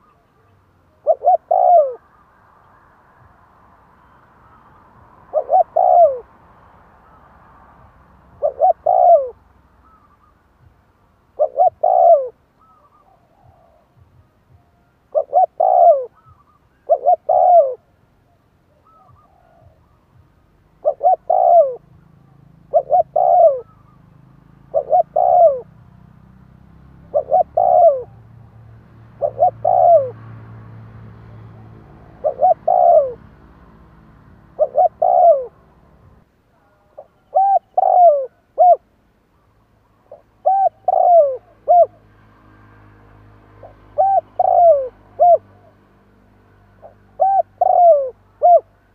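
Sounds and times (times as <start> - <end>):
dove cooing: 0.0 - 2.2, 4.0 - 6.4, 8.2 - 10.4, 11.3 - 14.0, 15.1 - 17.9, 18.7 - 20.1, 20.8 - 25.8, 26.9 - 30.4, 31.4 - 33.5, 34.3 - 35.7, 36.8 - 42.0, 43.6 - 45.9, 46.8 - 48.8.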